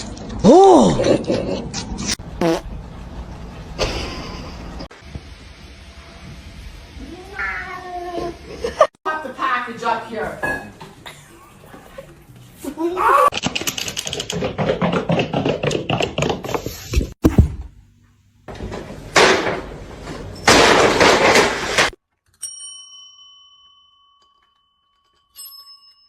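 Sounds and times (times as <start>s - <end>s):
sharp knock: 17.2s - 17.7s
bell-like ding: 22.4s - 24.4s.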